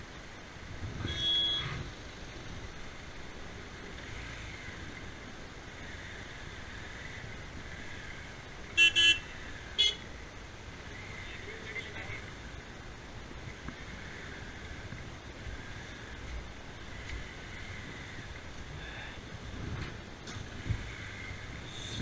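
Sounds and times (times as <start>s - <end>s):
road noise: 0.0s - 22.0s
vehicle horn honking: 1.0s - 1.8s, 8.8s - 10.0s.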